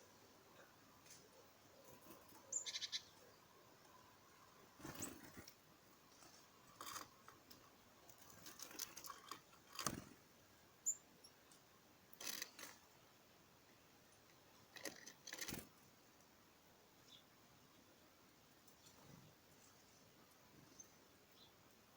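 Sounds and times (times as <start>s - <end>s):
high bird chirp: 2.5s - 3.2s.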